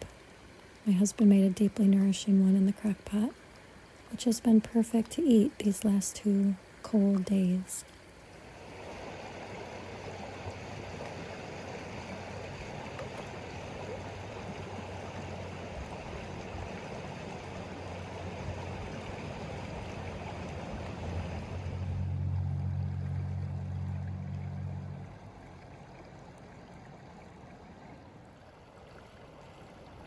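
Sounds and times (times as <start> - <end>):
flowing water: 0.0 - 30.0
low rumble: 17.6 - 27.1.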